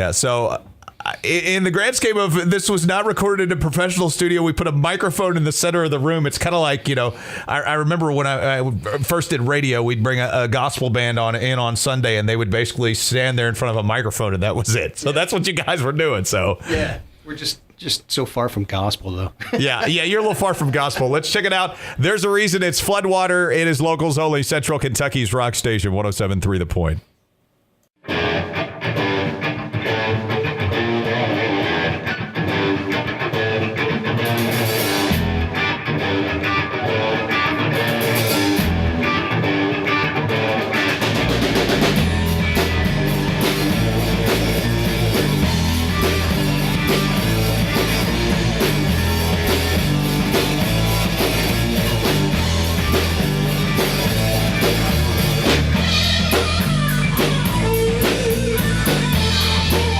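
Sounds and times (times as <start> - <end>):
electric guitar: 28.0 - 59.9
rock band playing live: 28.0 - 59.9
bass and drums: 34.2 - 35.9, 37.5 - 39.7, 40.4 - 59.9.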